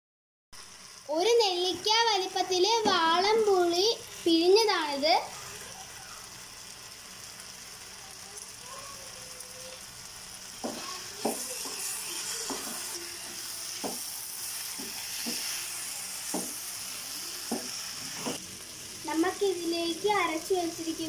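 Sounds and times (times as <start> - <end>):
fish sizzling in frying pan: 0.6 - 21.0
spatula scraping a pan: 10.6 - 18.4.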